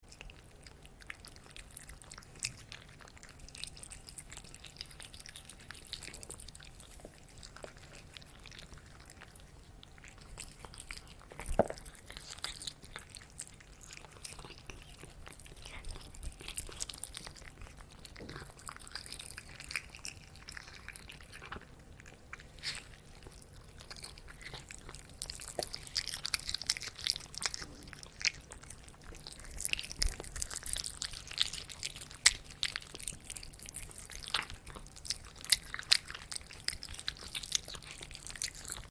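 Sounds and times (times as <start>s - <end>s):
cat chewing and crunching: 0.0s - 38.9s.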